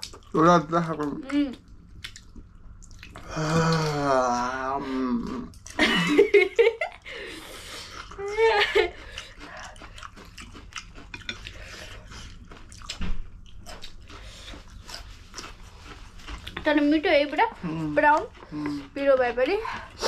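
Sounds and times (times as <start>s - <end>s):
chewing and slurping noodles: 7.6s - 20.0s.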